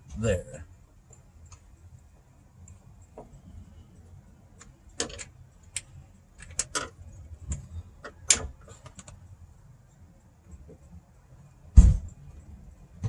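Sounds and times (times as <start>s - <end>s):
small metal parts clicking: 4.6s - 9.2s.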